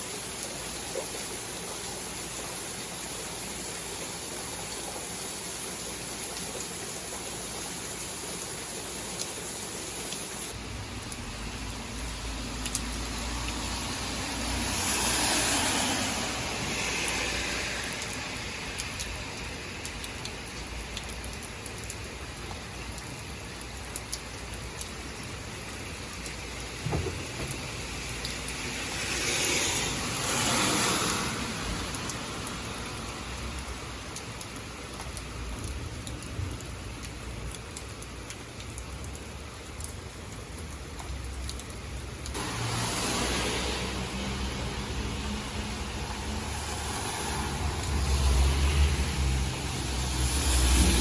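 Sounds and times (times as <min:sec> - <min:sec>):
steady rain: 0:00.0 - 0:51.0
car tyres hissing on wet road: 0:11.2 - 0:19.3, 0:26.7 - 0:34.0, 0:42.3 - 0:51.0
drops hitting close by: 0:26.8 - 0:28.6.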